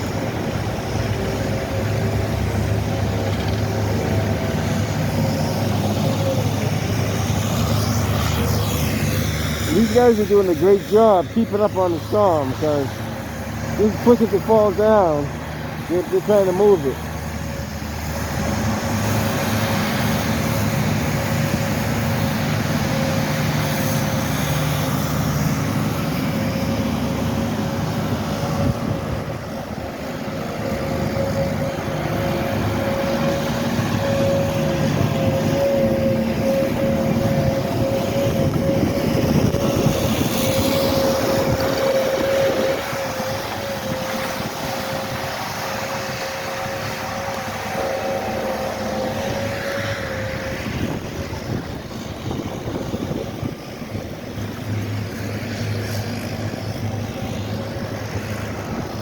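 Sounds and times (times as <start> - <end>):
heavy vehicle engine running: 0.0 - 59.0.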